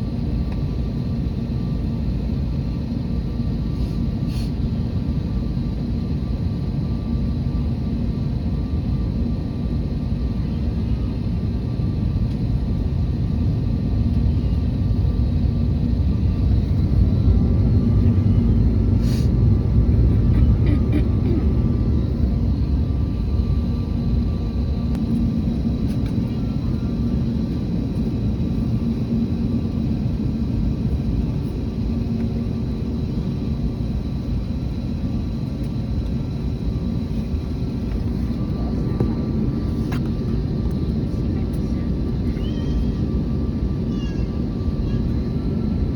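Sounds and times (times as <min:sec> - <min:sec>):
faint steady engine tones: 0:00.0 - 0:45.9
jet engines rumbling: 0:00.0 - 0:45.9.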